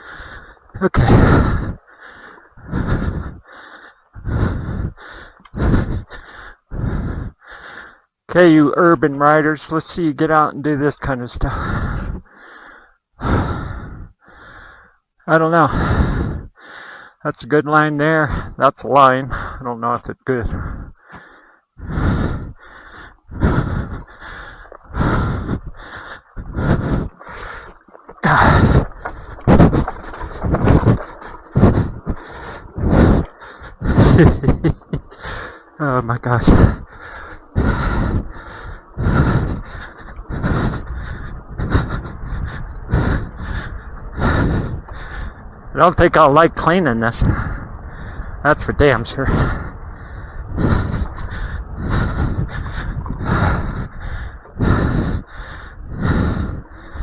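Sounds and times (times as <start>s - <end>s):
person breathing hard: 0.0s - 8.2s, 11.5s - 15.1s, 15.7s - 17.2s, 20.4s - 45.7s, 47.2s - 48.4s, 49.2s - 57.0s.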